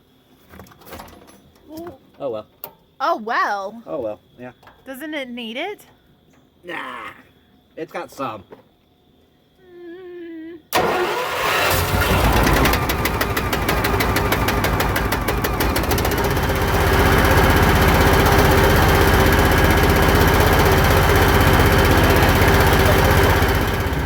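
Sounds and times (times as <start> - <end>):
truck engine running: 10.8 - 24.0.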